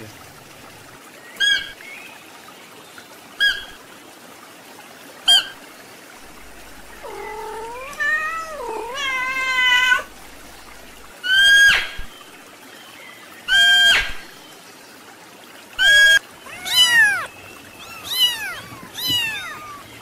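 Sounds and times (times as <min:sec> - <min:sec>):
cat meowing: 0:06.9 - 0:10.2, 0:15.8 - 0:19.9.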